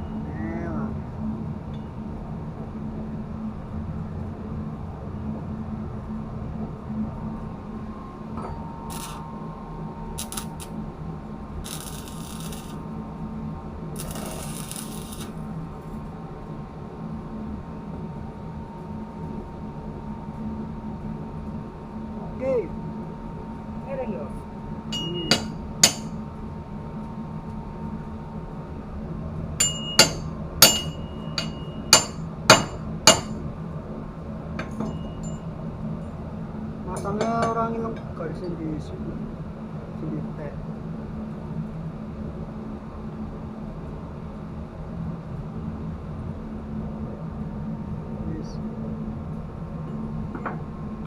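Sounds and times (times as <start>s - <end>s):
low machinery hum: 0.0s - 51.0s
bursts of hiss or scraping: 14.0s - 15.3s
metal-on-metal strikes: 25.0s - 26.2s, 29.6s - 33.4s.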